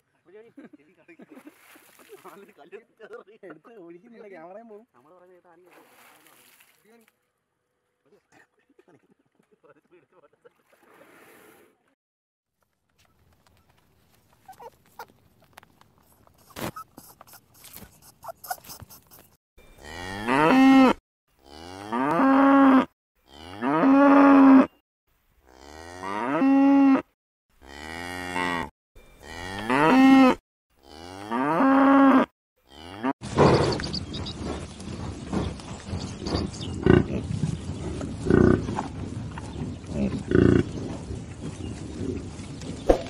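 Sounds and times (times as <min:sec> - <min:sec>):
faint clicks and rustles: 0:12.6 - 0:19.3.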